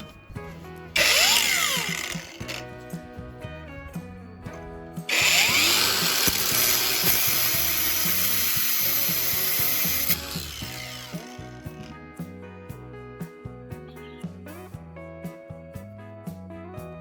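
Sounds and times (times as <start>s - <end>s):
background music: 0.0s - 17.0s
electric power tool running: 1.0s - 3.1s, 5.0s - 12.0s.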